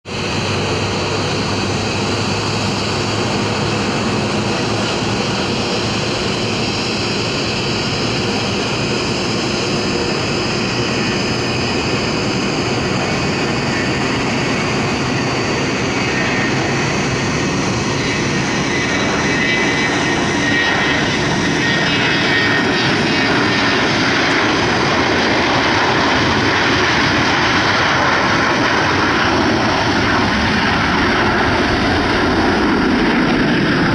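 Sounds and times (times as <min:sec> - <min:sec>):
jet engines at takeoff power: 0:00.0 - 0:33.9.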